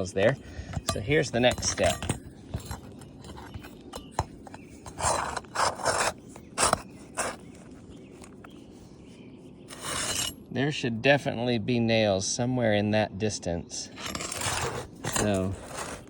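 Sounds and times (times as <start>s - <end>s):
shingles scraping and rustling: 0.0s - 8.5s, 9.7s - 10.4s, 13.9s - 16.0s
light clicks of shingles: 0.0s - 10.5s.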